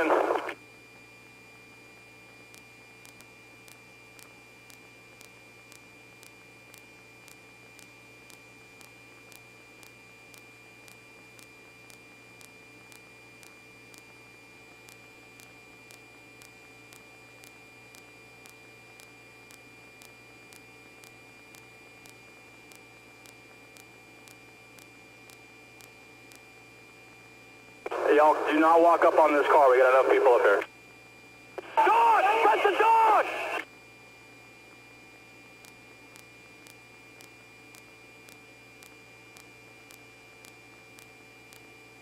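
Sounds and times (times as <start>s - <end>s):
electrical hum and hiss: 0.0s - 42.0s
faint high whine: 0.0s - 42.0s
faint ticks: 2.5s - 14.2s, 14.8s - 26.5s, 35.6s - 41.7s.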